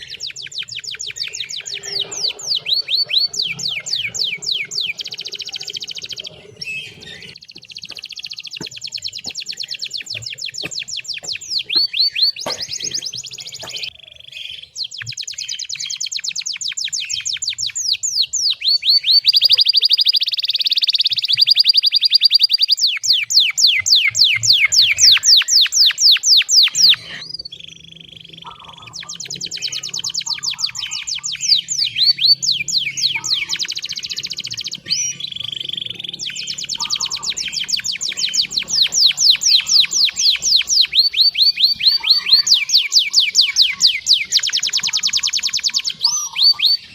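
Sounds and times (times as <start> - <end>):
canary singing rolling song: 0.0 - 46.9.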